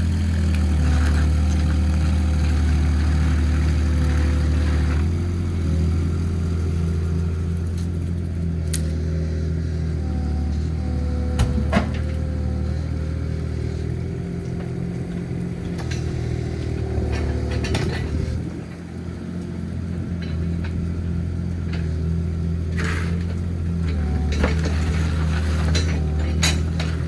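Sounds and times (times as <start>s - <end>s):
excavator engine running: 0.0s - 27.0s
metal clanks and knocks: 10.8s - 12.6s, 13.9s - 18.8s, 22.8s - 27.0s.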